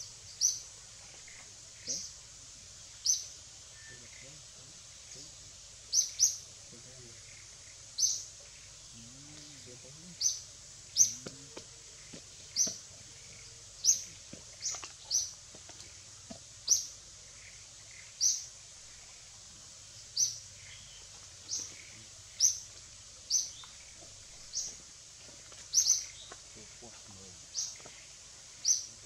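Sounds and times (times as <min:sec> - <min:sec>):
bird chirping: 0:00.0 - 0:29.0.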